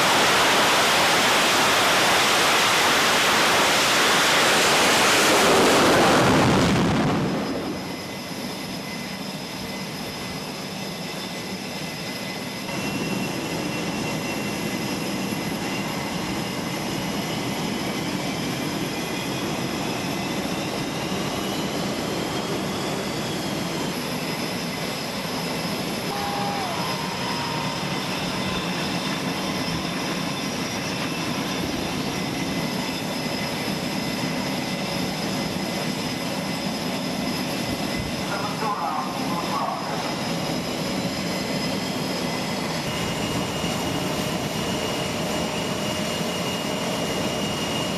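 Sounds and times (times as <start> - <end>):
loud rush of noise: 0.0 - 8.1, 26.0 - 30.0
aircraft engines droning: 0.0 - 47.9
high whining tones: 0.0 - 47.9.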